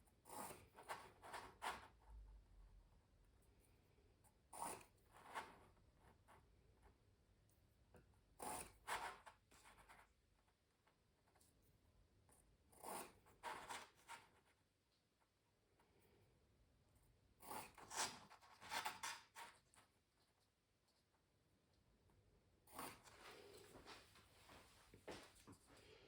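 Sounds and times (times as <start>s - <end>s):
pencil scratching on canvas: 0.1s - 2.0s, 4.3s - 6.5s, 8.4s - 10.2s, 12.3s - 14.6s, 17.3s - 20.0s, 22.6s - 23.8s.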